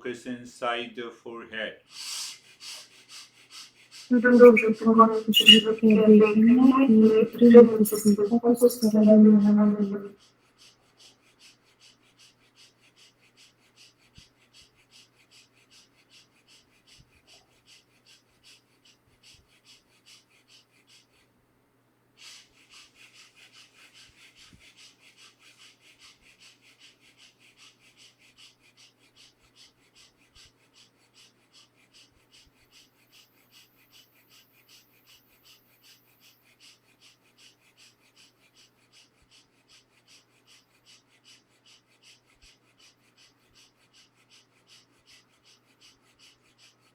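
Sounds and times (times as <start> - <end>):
person breathing rapidly through nose: 1.8 - 5.3.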